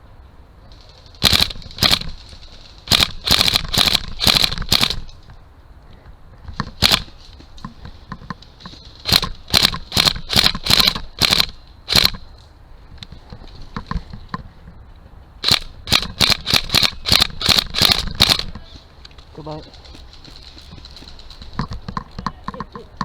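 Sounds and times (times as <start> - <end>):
airsoft gun shots: 1.2 - 2.1, 2.9 - 5.1, 6.8 - 7.1, 9.0 - 12.2, 15.4 - 18.5.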